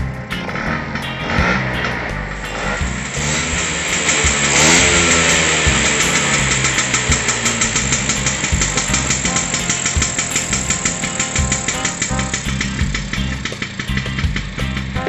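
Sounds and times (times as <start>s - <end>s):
scooter engine revving: 0.0s - 15.0s.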